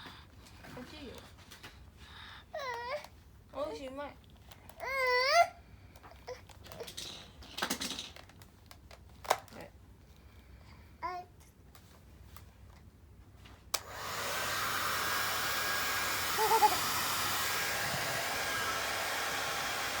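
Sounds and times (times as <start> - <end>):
hair dryer switch click: 13.7 - 20.0
hair dryer blowing: 13.8 - 20.0.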